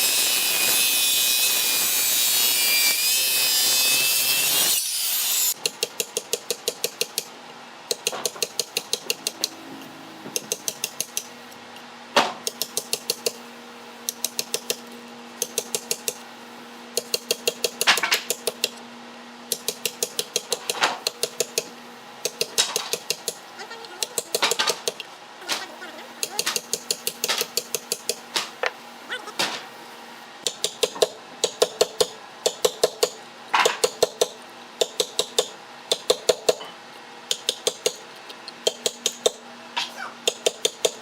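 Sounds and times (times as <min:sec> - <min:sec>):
power tool cutting wood: 0:00.0 - 0:05.6.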